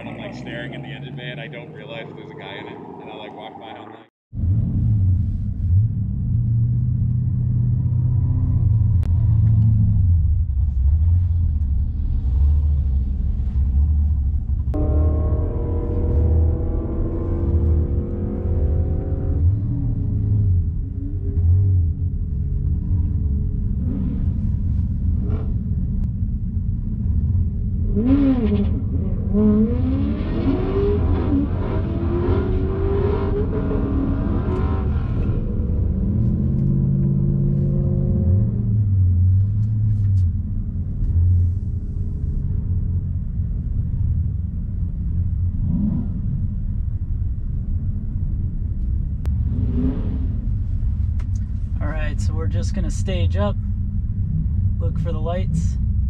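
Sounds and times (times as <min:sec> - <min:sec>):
engine revving: 0:00.0 - 0:05.1, 0:14.7 - 0:20.6, 0:27.8 - 0:39.7, 0:45.5 - 0:46.4, 0:49.2 - 0:50.5
vehicle engines rumbling: 0:00.0 - 0:56.0.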